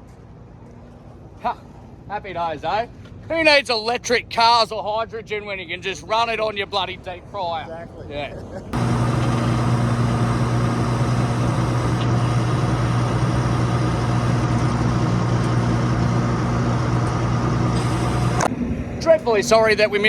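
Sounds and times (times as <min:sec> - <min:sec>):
diesel engine idling: 0:08.8 - 0:18.5.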